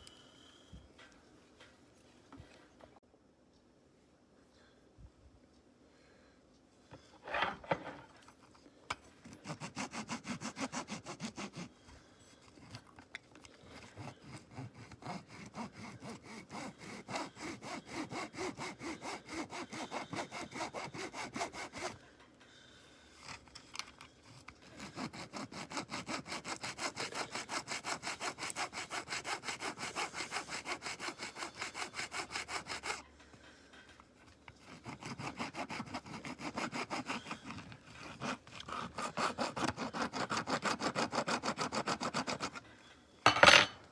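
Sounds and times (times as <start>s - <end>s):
hand saw strokes: 9.2s - 22.0s, 23.2s - 33.0s, 34.1s - 42.6s.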